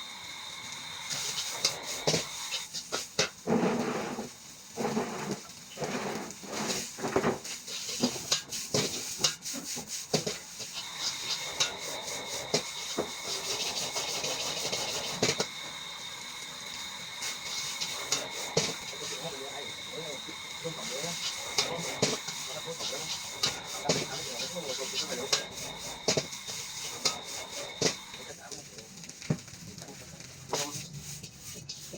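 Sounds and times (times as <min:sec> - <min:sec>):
rice sizzling in a wok: 0:00.0 - 0:31.9
spatula scraping metal pan: 0:01.1 - 0:15.6, 0:17.0 - 0:28.3, 0:29.0 - 0:31.9.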